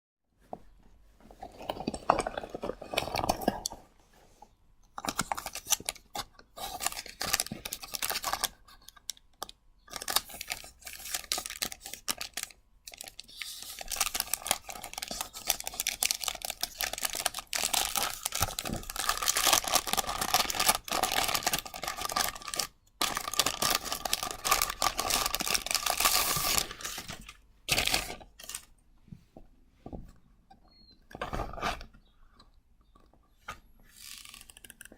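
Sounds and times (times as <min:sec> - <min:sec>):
plastic packaging crinkling: 0:05.0 - 0:28.7.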